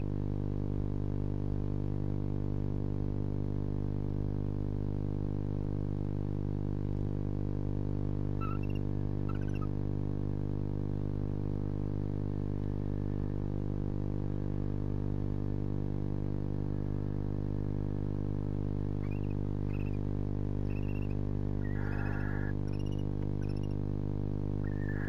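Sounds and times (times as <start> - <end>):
electrical hum: 0.0 - 25.0
owl twittering chirps: 8.4 - 9.7, 19.0 - 20.0, 20.6 - 23.8, 24.6 - 25.0.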